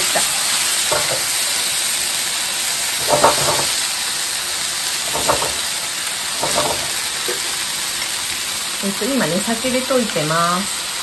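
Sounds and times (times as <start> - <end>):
food sizzling in oil: 0.0 - 11.0
wooden spatula scraping food: 3.0 - 3.8.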